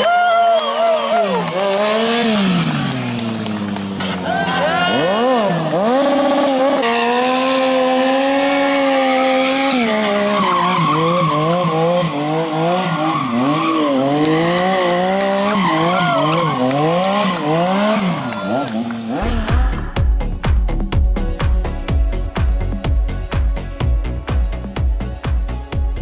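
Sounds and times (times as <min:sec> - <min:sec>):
motorcycle engine revving: 0:01.0 - 0:26.0.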